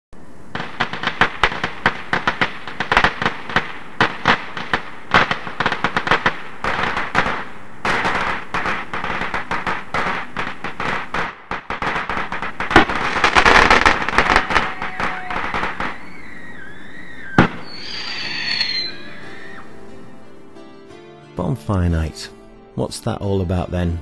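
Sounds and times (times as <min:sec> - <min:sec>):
fireworks fizzing hiss: 0:00.2 - 0:19.9
fireworks cracking and banging: 0:00.5 - 0:19.6.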